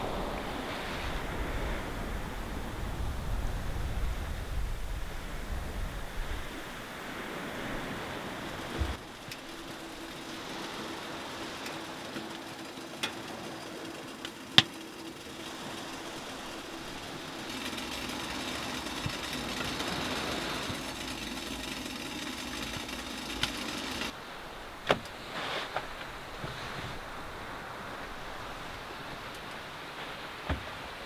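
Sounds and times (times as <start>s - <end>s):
firewood popping: 8.6s - 24.1s.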